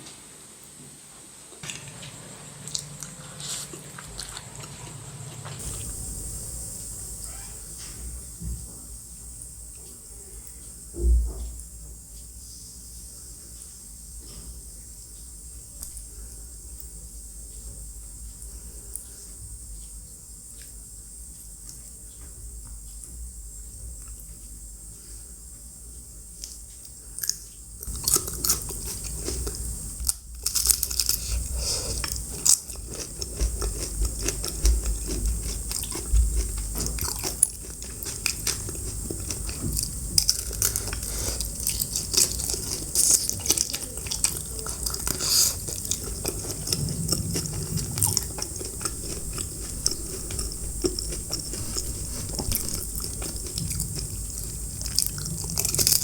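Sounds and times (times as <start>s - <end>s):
crunchy biting and chewing: 1.6s - 8.2s, 27.2s - 56.0s.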